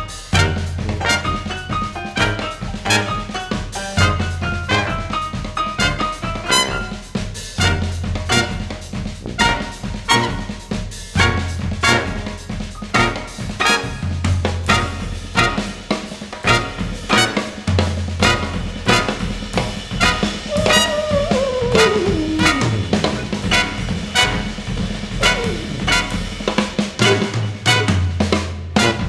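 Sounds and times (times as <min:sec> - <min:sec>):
brass ensemble jazz: 0:00.0 - 0:29.0
drum strokes: 0:00.0 - 0:29.0
downward pitch slide: 0:20.5 - 0:24.4, 0:25.2 - 0:26.2
low bass notes: 0:20.7 - 0:26.4.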